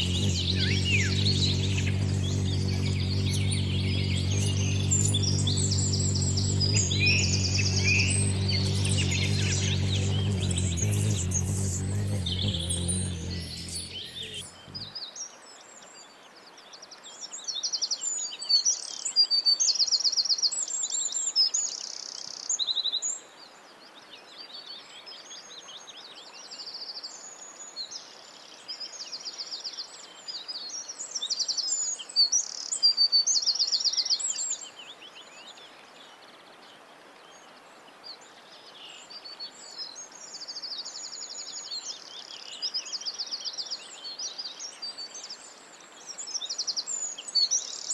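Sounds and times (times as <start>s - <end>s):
background hiss: 0.0s - 14.9s
songbirds chirping and singing: 0.0s - 14.9s.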